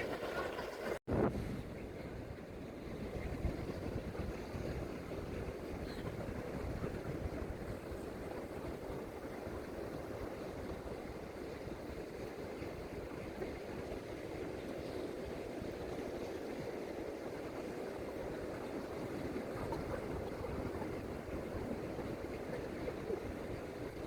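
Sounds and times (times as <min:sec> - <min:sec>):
sea surf at shoreline: 0:00.0 - 0:24.0.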